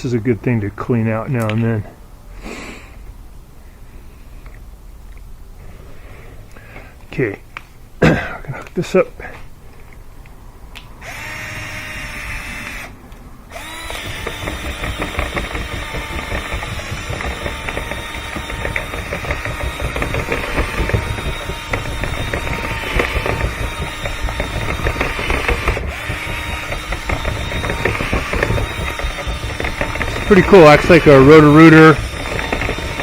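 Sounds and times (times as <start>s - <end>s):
power drill spinning: 11.0s - 33.0s
rods clattering inside duct: 13.5s - 33.0s.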